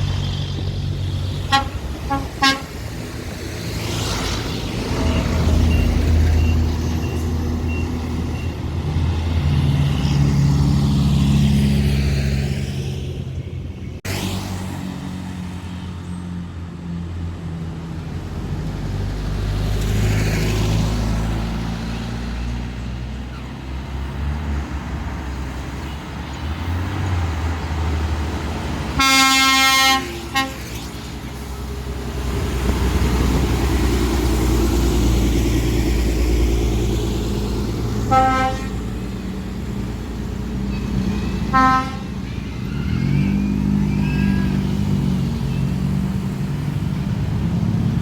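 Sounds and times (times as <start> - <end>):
heavy diesel engines running: 0.0 - 14.1, 14.8 - 48.0
horn toot: 1.4 - 2.9, 29.0 - 31.0, 38.0 - 39.0, 40.7 - 44.8.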